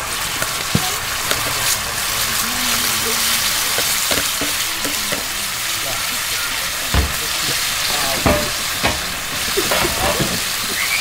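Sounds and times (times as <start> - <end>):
food sizzling in a pan: 0.0 - 11.0
utensil knocking against pan: 3.8 - 5.4, 6.9 - 10.5.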